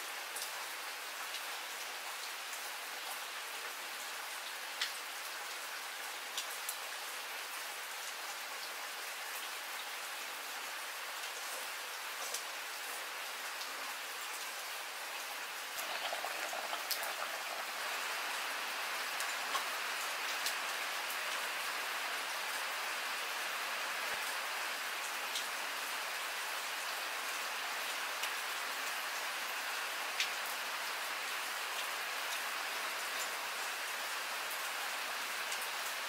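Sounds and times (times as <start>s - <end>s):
steady rain hiss: 0.0s - 36.0s
rain drops ticking: 10.7s - 36.0s.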